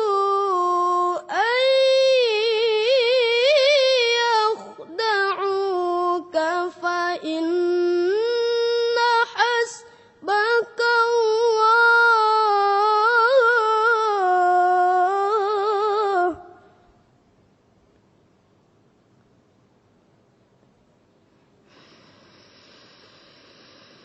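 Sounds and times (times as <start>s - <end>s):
person chanting melodically: 2.1s - 11.6s.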